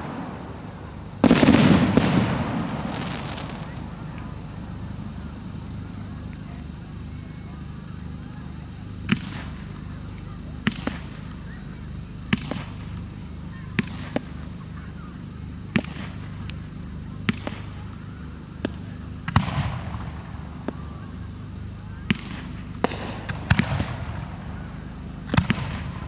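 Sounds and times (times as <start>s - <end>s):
firework bangs: 1.2s - 5.9s, 22.1s - 26.0s
firework crackle: 1.2s - 7.1s, 22.1s - 26.0s.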